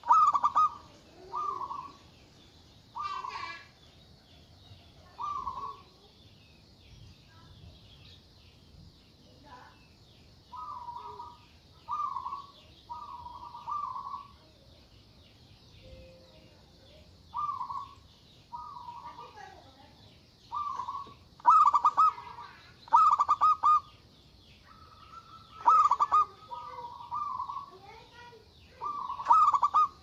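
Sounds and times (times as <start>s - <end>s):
dove cooing: 0.0s - 2.1s, 3.0s - 3.6s, 5.1s - 6.0s, 10.5s - 14.5s, 17.3s - 19.5s, 20.5s - 23.9s, 24.7s - 27.9s, 28.7s - 30.0s
faint fast bird chirping: 0.0s - 30.0s.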